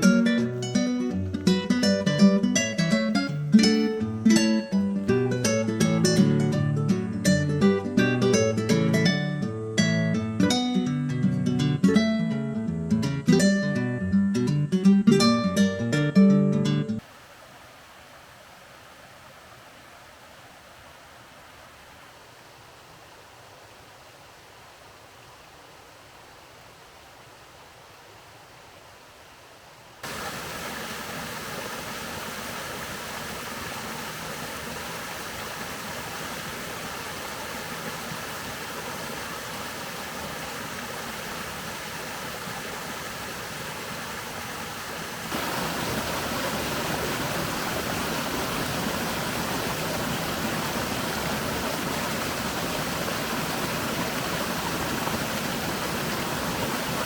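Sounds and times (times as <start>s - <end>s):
steady rain falling: 17.0s - 57.0s.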